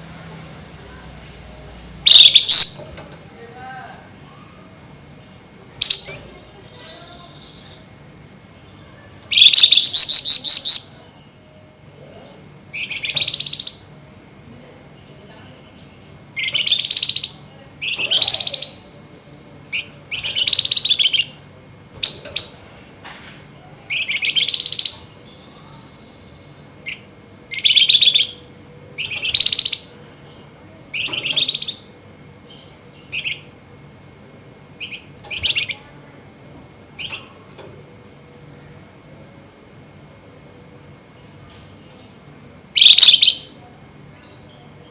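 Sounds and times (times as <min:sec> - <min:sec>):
songbird chattering: 0:02.0 - 0:02.8, 0:05.8 - 0:07.9, 0:09.3 - 0:11.1, 0:12.7 - 0:13.9, 0:15.9 - 0:21.4, 0:23.9 - 0:33.5, 0:34.8 - 0:35.9, 0:42.8 - 0:43.6.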